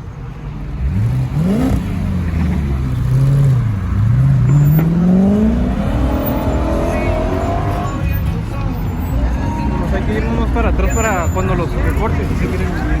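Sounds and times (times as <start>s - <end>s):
car engine revving: 0.7s - 8.1s.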